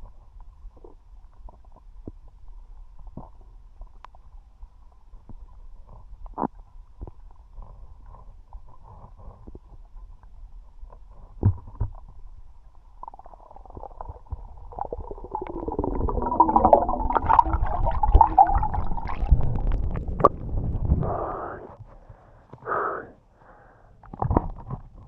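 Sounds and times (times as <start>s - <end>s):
underwater rumble of moving water: 0.0s - 21.8s
gurgling bubbles: 12.9s - 21.6s.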